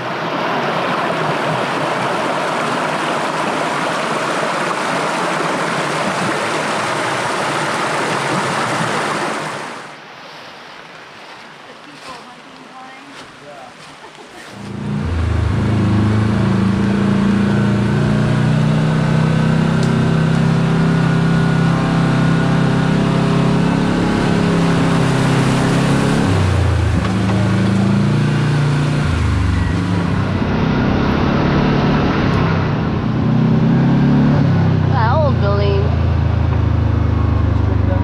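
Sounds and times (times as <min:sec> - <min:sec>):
utility vehicle engine running: 0:14.5 - 0:38.0.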